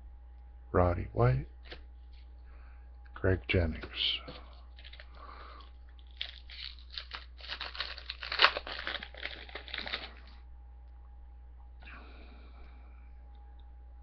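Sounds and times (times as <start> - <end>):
wrapper torn and crinkled: 4.7 - 10.4.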